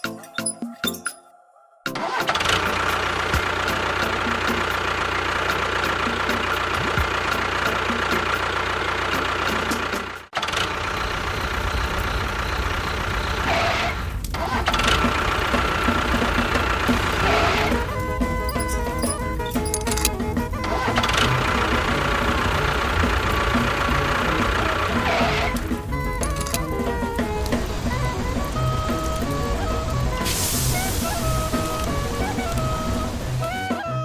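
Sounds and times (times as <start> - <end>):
motor running with faint whine: 14.8 - 33.5.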